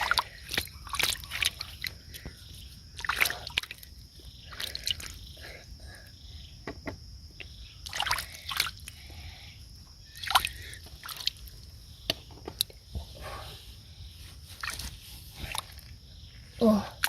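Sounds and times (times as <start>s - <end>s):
shallow water splashing: 0.0s - 2.0s, 7.8s - 8.8s, 14.6s - 15.9s.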